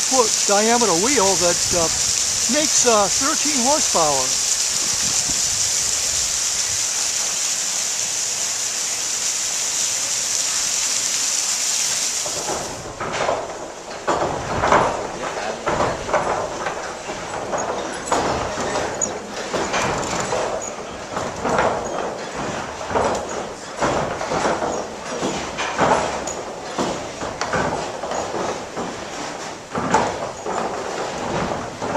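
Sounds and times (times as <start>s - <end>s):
water falling on water wheel: 0.0s - 31.9s
wooden machinery knocking: 12.9s - 31.9s.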